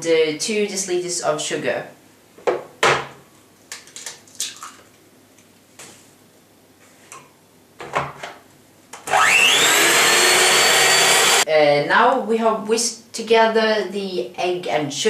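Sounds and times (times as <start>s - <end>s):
electric mixer whirring: 9.0s - 11.4s.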